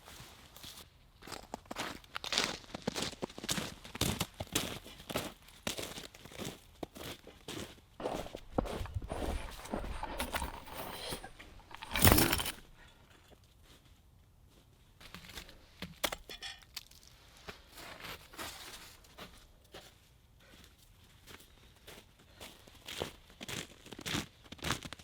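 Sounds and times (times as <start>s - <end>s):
rustling of branches: 8.0s - 12.8s.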